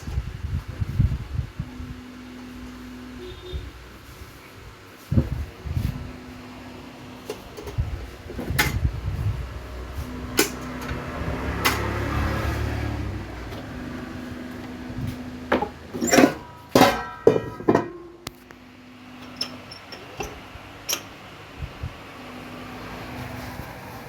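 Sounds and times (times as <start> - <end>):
loud metallic clanks: 15.6 - 18.2.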